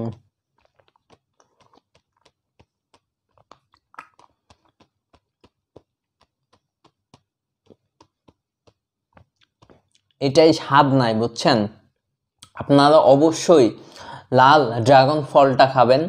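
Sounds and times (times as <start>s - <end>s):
wet chewing clicks: 0.0s - 10.2s.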